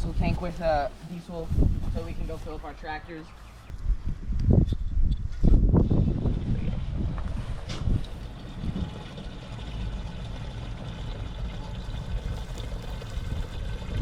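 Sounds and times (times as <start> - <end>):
low mechanical hum: 3.5 - 14.0
fuel rushing into tank: 5.8 - 14.0.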